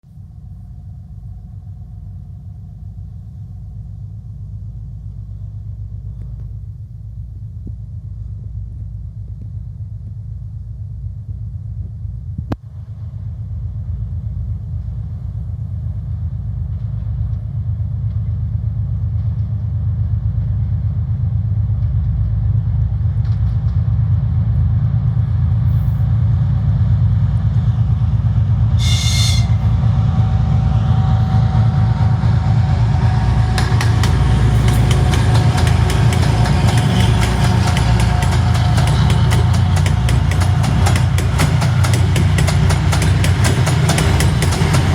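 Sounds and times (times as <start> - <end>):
diesel locomotive engines droning: 0.1 - 44.9
wheels clacking over rail joints: 32.8 - 44.9.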